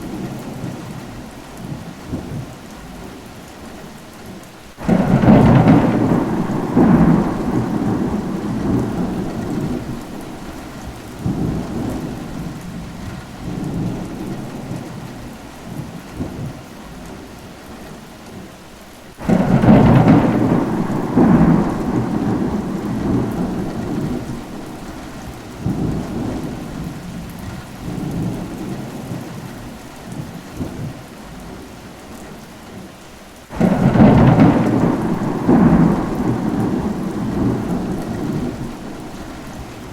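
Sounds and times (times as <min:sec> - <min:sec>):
rain falling: 0:00.0 - 0:39.9
thunder rumbling: 0:04.8 - 0:17.1, 0:19.2 - 0:31.6, 0:33.5 - 0:39.9.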